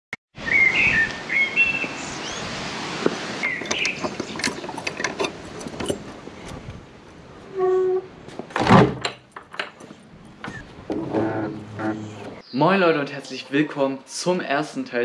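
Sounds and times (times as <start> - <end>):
birds chirping: 0.4 - 2.6, 3.3 - 5.1, 10.4 - 13.7
steady background noise: 2.7 - 15.0.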